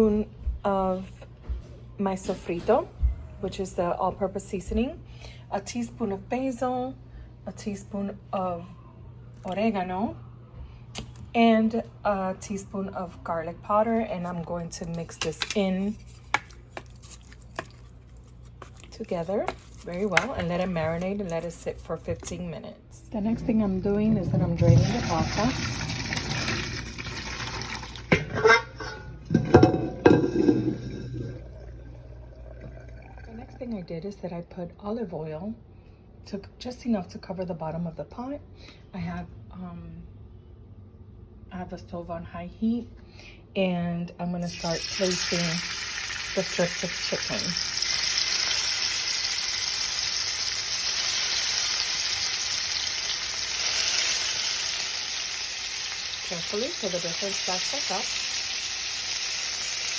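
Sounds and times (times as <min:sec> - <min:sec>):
metal pot clanking: 0:23.9 - 0:31.9
water pouring from a pot: 0:24.5 - 0:33.6, 0:44.5 - 0:59.9
chicken sizzling in oil: 0:44.5 - 0:59.9.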